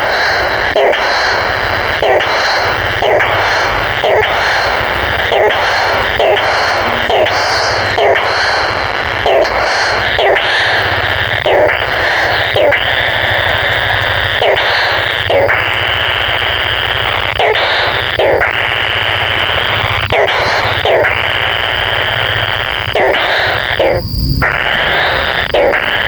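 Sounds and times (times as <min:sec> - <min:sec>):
steady low hum: 0:01.3 - 0:09.1, 0:18.2 - 0:26.0.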